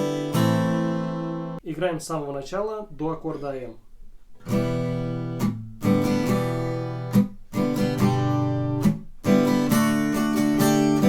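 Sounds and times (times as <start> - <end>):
acoustic guitar strumming: 0.0 - 1.6, 4.4 - 11.0.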